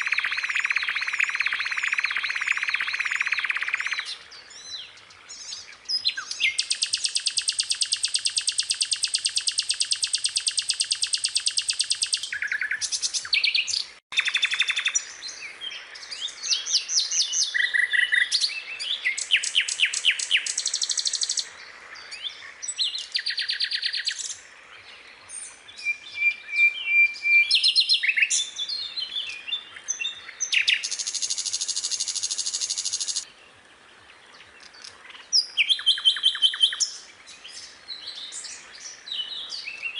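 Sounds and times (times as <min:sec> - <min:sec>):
skylark singing: 0:00.0 - 0:04.1, 0:05.9 - 0:15.1.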